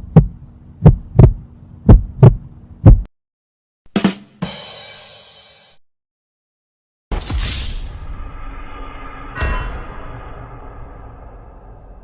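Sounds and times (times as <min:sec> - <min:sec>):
heartbeat thumps: 0:00.0 - 0:03.1
short hit: 0:07.1 - 0:12.0.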